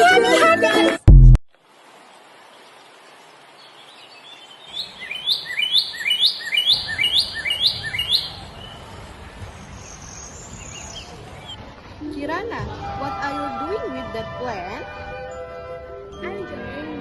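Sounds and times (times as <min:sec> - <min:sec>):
faint outdoor background noise: 0:01.5 - 0:17.0
songbird singing: 0:02.3 - 0:12.4.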